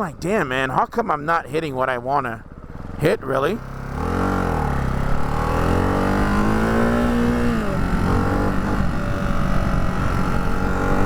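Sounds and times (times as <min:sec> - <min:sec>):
motorcycle engine accelerating: 0:02.4 - 0:11.0.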